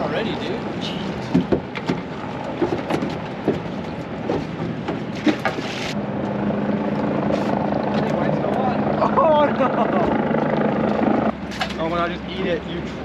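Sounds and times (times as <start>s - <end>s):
rush of wind and water: 0.0s - 6.0s
steady low hum: 5.9s - 13.0s.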